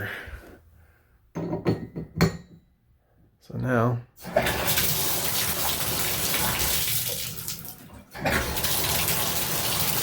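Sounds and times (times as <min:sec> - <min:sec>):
shower water running into tub: 0:04.2 - 0:10.0.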